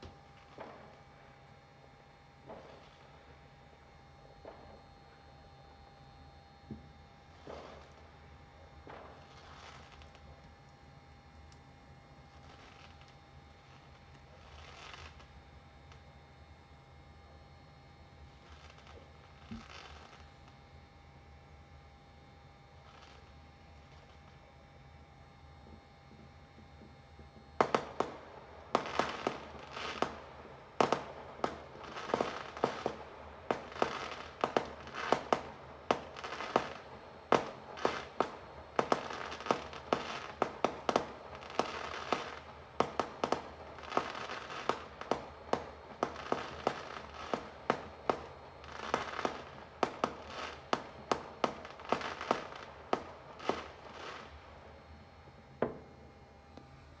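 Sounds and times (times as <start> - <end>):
fireworks banging: 0.0 - 1.1, 6.7 - 8.2, 26.2 - 56.3
fireworks crackling: 0.0 - 5.7, 6.4 - 10.8, 11.4 - 16.1, 18.2 - 20.7, 22.8 - 24.5, 26.7 - 56.6.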